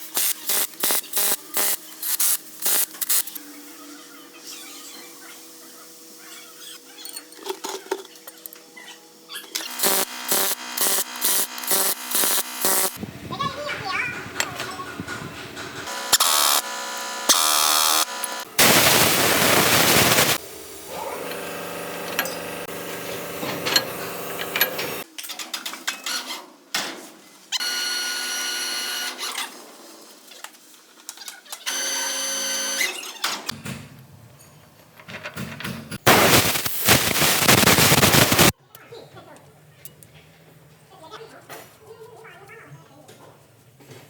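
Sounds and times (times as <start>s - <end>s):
power tool motor whine: 9.6s - 13.0s, 15.9s - 20.4s, 21.0s - 25.0s
loud noisy bursts: 9.7s - 13.0s, 15.9s - 20.9s, 36.0s - 38.5s.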